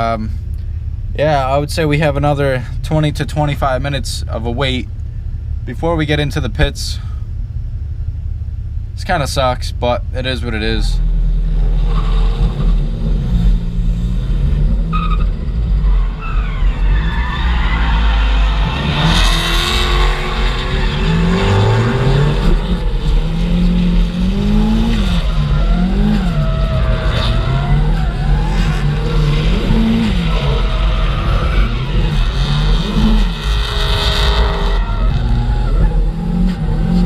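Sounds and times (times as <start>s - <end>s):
car engine revving: 10.2s - 37.0s
tyre squeal: 14.8s - 23.4s, 24.0s - 37.0s.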